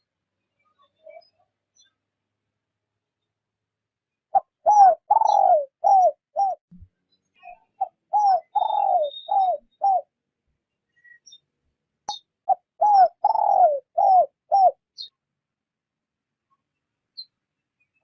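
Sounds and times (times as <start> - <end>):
faint small bird chirps: 0.0 - 2.1, 4.1 - 15.3, 16.4 - 18.0
dove cooing: 4.3 - 6.6, 7.8 - 10.1, 12.5 - 14.8.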